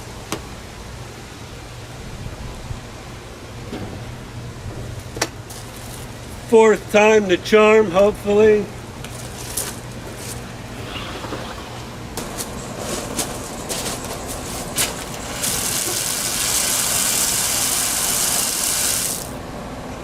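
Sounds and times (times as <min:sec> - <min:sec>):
low steady hum: 0:00.0 - 0:18.1
water rushing from a hose tap: 0:14.8 - 0:19.4.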